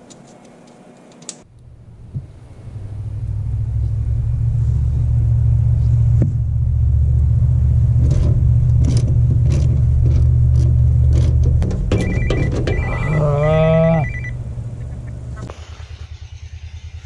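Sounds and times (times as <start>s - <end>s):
low mechanical rumble: 0.0s - 17.0s
high electronic beeping: 11.9s - 15.0s.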